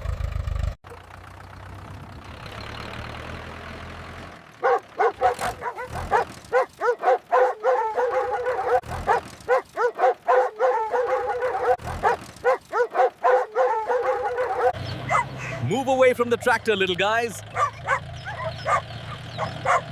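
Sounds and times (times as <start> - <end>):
puppies yipping and whining: 4.6 - 15.7, 17.5 - 19.9.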